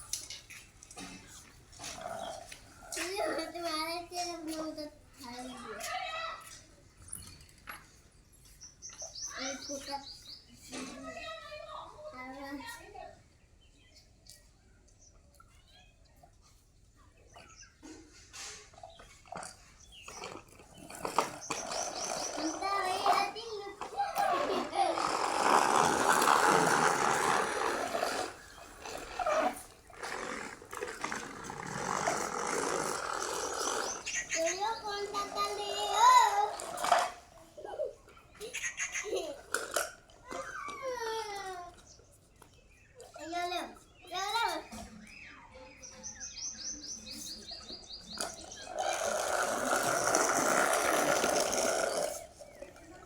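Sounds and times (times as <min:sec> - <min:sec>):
toy tractor motor whirring: 0:17.8 - 0:42.0, 0:47.7 - 0:53.0.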